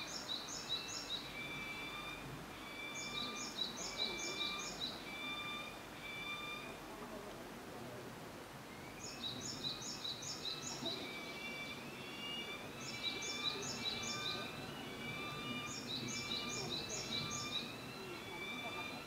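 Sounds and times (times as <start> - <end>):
falcon shrill repeated calls: 1.3 - 6.8, 10.8 - 19.0
chick whistled begging calls: 1.4 - 6.8, 10.8 - 19.0.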